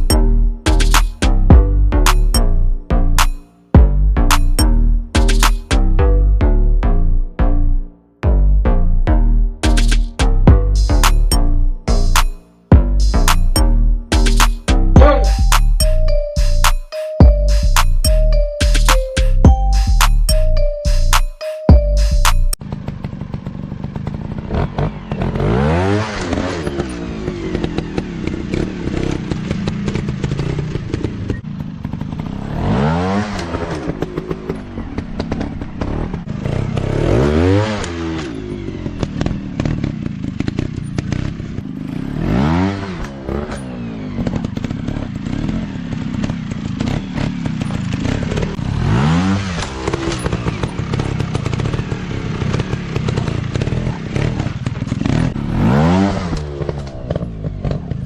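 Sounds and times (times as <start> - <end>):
dirt bike engines revving: 23.8 - 58.0.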